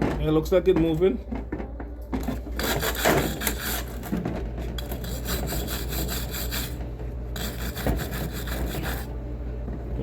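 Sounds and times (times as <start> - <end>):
brush scrubbing metal vice: 2.6 - 4.0, 4.8 - 6.8, 7.4 - 9.1.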